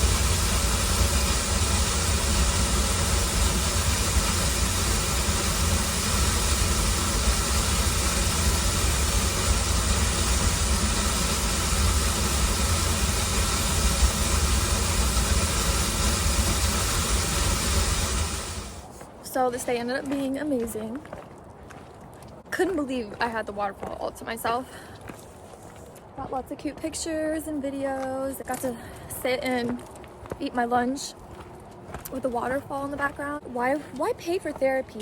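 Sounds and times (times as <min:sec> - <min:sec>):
waterfall rushing: 0:00.0 - 0:18.8.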